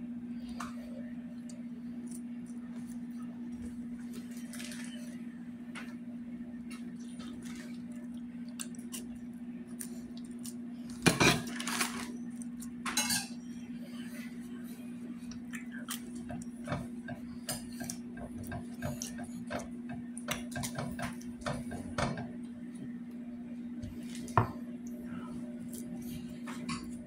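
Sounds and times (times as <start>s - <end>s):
steady low hum: 0.0s - 27.0s
mouth chewing with wet clicks: 15.3s - 16.5s.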